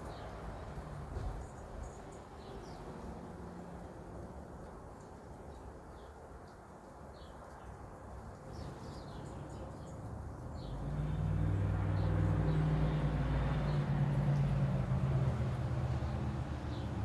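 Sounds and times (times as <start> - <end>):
small birds chirping: 0.0 - 17.0
low engine hum: 9.3 - 17.0.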